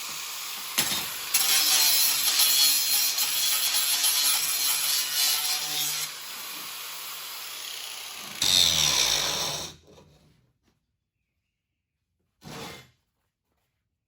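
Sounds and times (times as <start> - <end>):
angle grinder on metal: 0.0 - 9.8.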